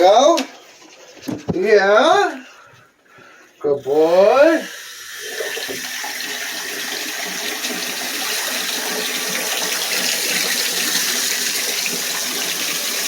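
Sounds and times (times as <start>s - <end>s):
tap water running into tub: 3.8s - 13.0s.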